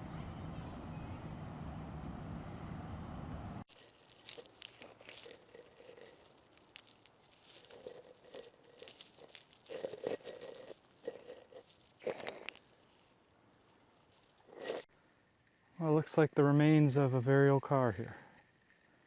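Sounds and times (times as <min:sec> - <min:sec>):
footsteps crunching on trail: 0:03.7 - 0:14.9.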